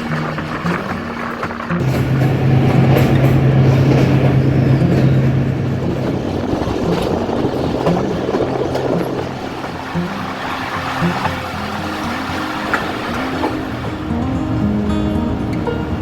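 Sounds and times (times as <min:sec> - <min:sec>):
passenger train running on rails: 0:00.0 - 0:16.0.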